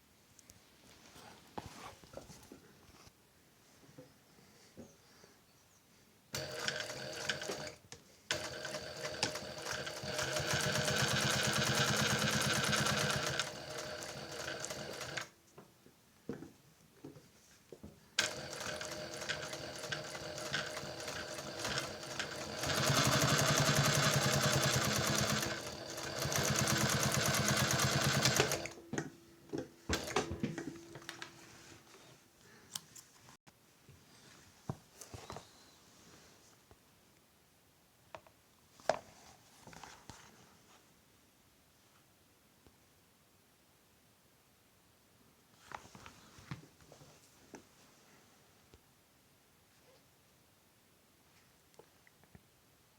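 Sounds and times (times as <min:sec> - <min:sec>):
sewing machine stitching: 0:06.4 - 0:15.3, 0:18.2 - 0:28.8.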